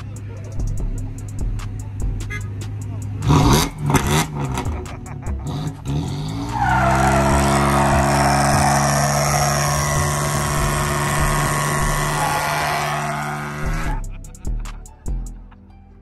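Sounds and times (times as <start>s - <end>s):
truck engine revving: 1.0s - 14.0s
tyres squealing: 6.3s - 14.0s.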